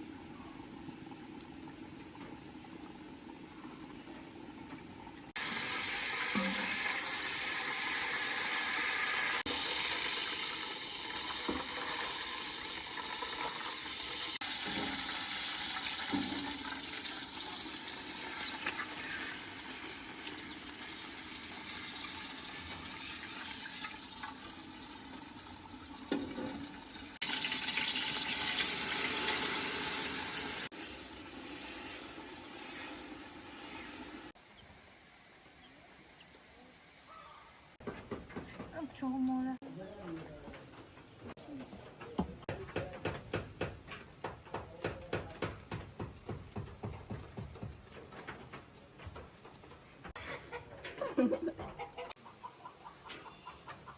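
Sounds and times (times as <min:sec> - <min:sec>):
water running and splashing: 0:00.6 - 0:34.4.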